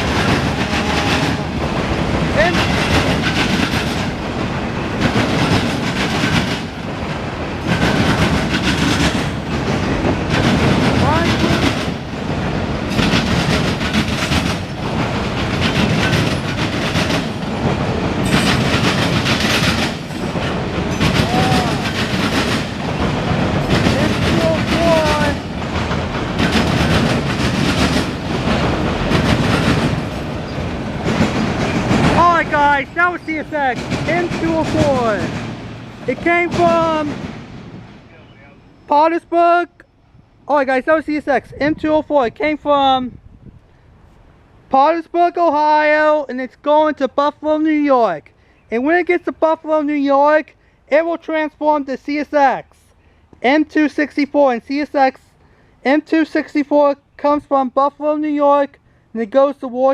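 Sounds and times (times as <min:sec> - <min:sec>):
wheel clatter over rail joints: 0:00.0 - 0:38.1
freight train rumbling past: 0:00.0 - 0:46.2.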